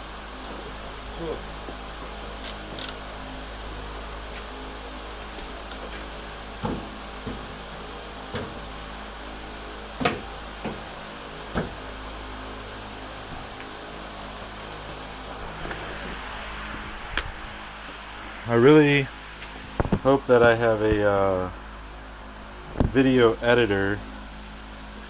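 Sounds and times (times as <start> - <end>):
steady background hum: 0.0 - 25.0
knocks and clunks: 6.6 - 7.7, 8.3 - 8.7, 10.0 - 10.9, 11.5 - 11.8.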